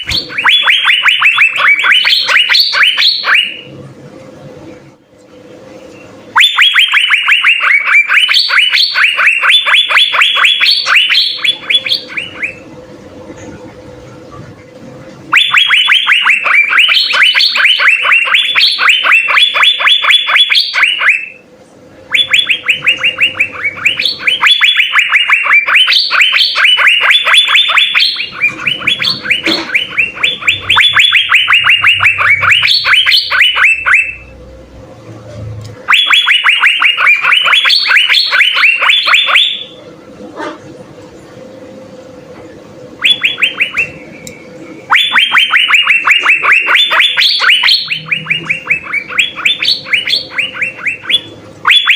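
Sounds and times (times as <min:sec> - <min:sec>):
faint steady hum: 0:00.0 - 0:51.9
bird singing whistled notes: 0:43.0 - 0:51.9.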